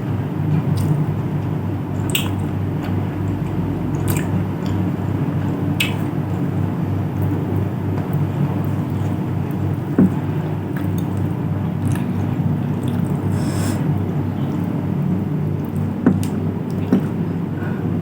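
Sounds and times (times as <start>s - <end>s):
chewing soft wet food: 0.1s - 18.0s
sharp wet mouth smacks: 2.1s - 2.4s, 5.8s - 6.1s.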